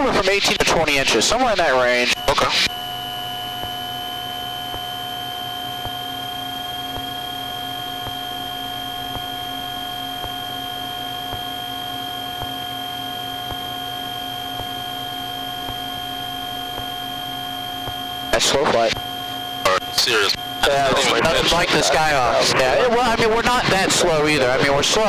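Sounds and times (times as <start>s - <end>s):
twin piston aircraft engines droning: 0.0s - 25.0s.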